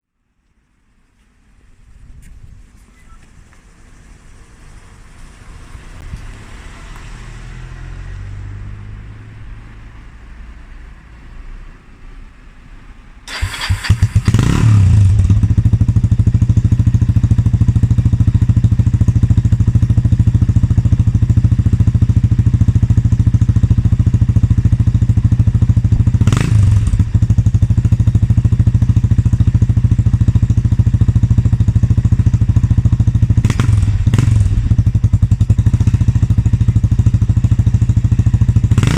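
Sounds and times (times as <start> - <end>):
motorcycle engine idling: 13.3 - 38.9.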